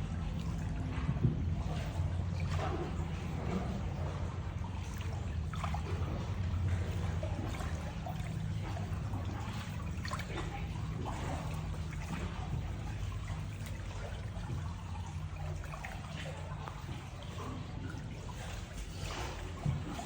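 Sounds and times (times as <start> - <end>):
small splashes and drips: 0.0 - 20.0
steady low hum: 0.0 - 20.0
water trickling and lapping: 0.0 - 20.0.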